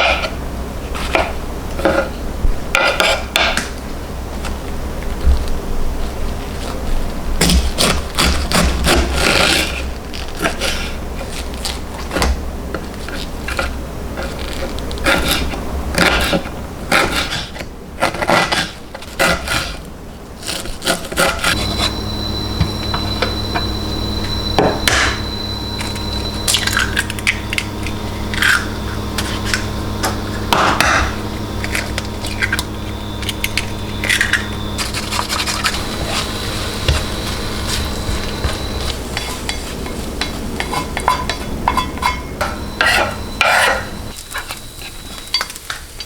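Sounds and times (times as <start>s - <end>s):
kitchen appliance humming: 0.0s - 46.0s
kitchen utensils scraping and knocking: 1.0s - 3.6s, 28.2s - 46.0s.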